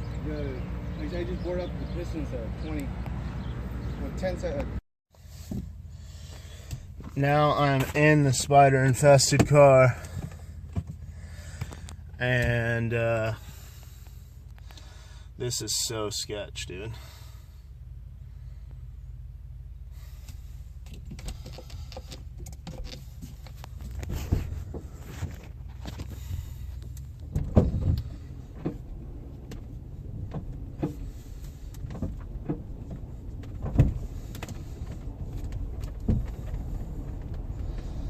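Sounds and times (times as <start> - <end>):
low vehicle rumble: 0.0 - 38.0
knocks and thuds in car: 9.1 - 12.8, 20.8 - 38.0.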